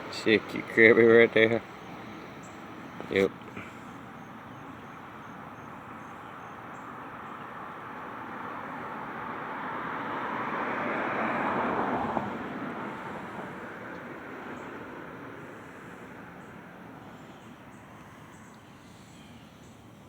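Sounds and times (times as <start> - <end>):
steady outdoor hiss: 0.0 - 20.0
vehicle passing on road: 0.0 - 20.0.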